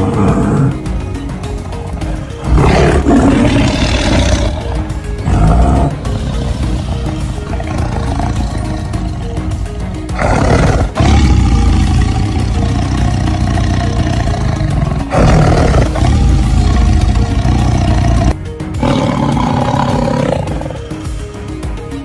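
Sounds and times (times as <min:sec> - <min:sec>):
tiger roaring: 0:00.0 - 0:21.1.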